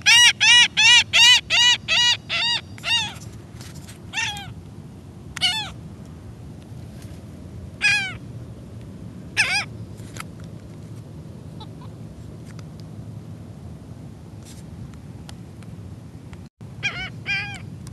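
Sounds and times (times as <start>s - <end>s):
seagull calling: 0.0s - 3.3s, 4.1s - 4.6s, 5.4s - 5.8s, 7.8s - 8.2s, 9.4s - 9.7s, 11.5s - 12.0s, 16.8s - 17.7s.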